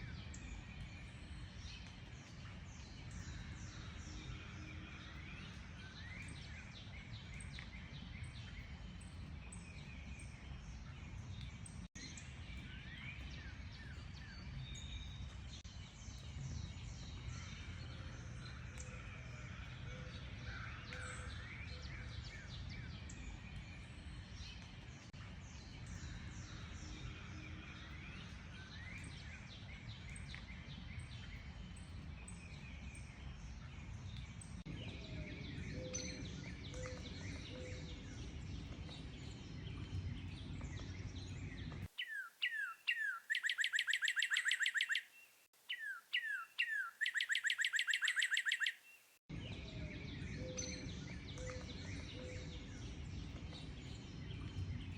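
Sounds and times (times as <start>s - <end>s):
birds chirping chorus: 12.6s - 54.9s
bird singing with trill: 34.7s - 54.9s.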